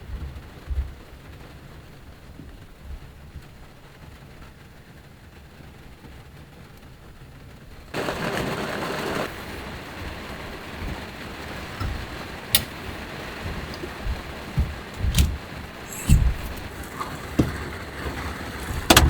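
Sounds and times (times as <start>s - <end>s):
low thuds: 0.0s - 1.5s, 9.4s - 18.0s
heavy rain: 0.0s - 19.0s.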